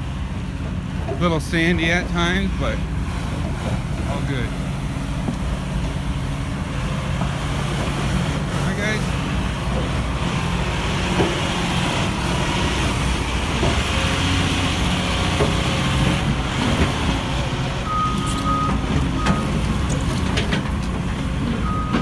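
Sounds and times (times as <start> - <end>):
vehicle engine and road noise: 0.0 - 22.0
reversing alarm beeping: 17.8 - 20.2, 21.6 - 22.0.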